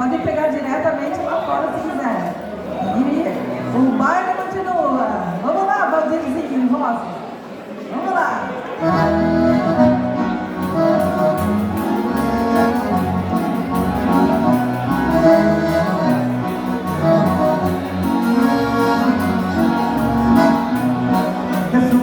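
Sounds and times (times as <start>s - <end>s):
accordion: 8.8s - 22.0s
bass line: 8.8s - 22.0s
steady percussion beat: 10.4s - 22.0s.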